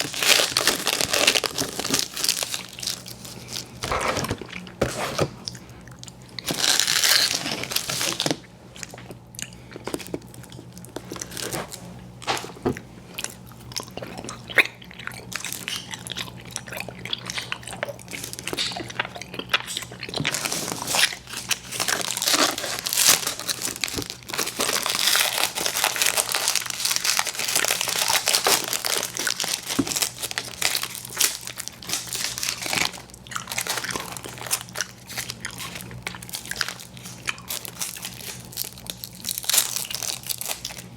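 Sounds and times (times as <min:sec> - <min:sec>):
chewing chewy candy: 0:00.0 - 0:40.9.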